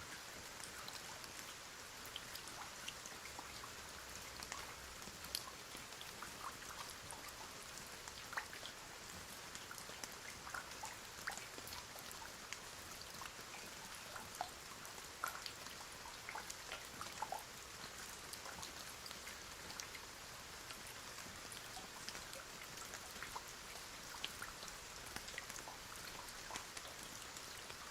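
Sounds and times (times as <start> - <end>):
raindrops ticking on a surface: 0.0 - 27.9.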